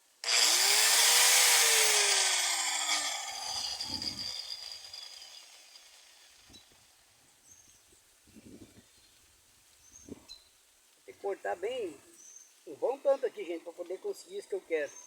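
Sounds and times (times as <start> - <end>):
angle grinder grinding sheet metal: 0.2 - 6.7.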